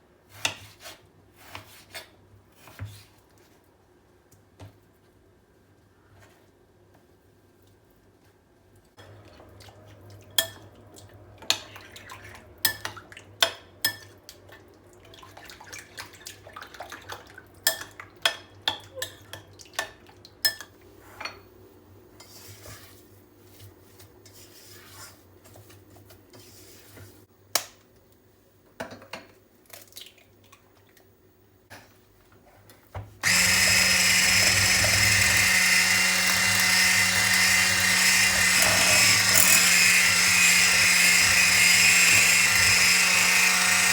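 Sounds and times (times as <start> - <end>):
kitchen appliance motor humming: 33.2 - 43.9
utensils and dishes clicking: 33.2 - 43.9.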